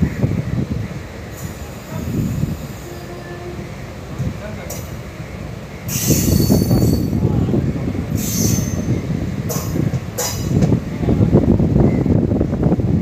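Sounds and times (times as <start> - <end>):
train wheel and rail rumble: 0.0 - 13.0
high-pitched wheel squeals: 5.9 - 7.2.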